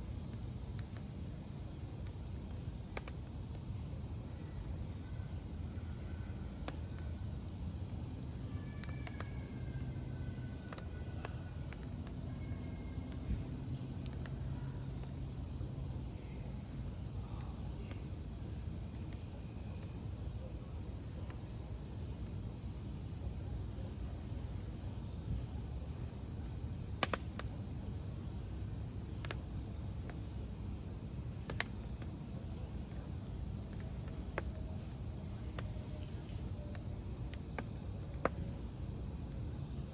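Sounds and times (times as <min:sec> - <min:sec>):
burning wood crackling and popping: 0:00.0 - 0:04.1, 0:08.0 - 0:15.9, 0:26.1 - 0:27.9, 0:28.8 - 0:39.9
campfire hissing: 0:00.0 - 0:39.9
crickets chirping: 0:00.0 - 0:39.9.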